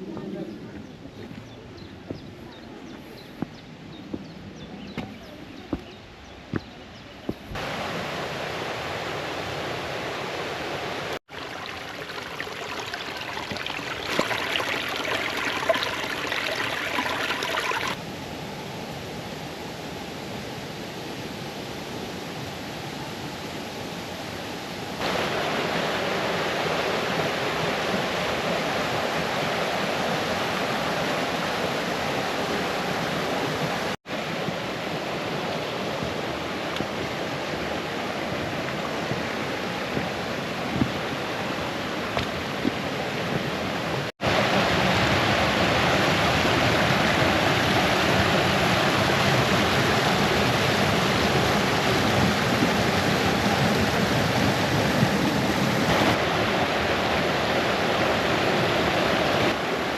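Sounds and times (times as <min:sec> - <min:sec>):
brook rushing over stones: 0:11.2 - 0:18.0.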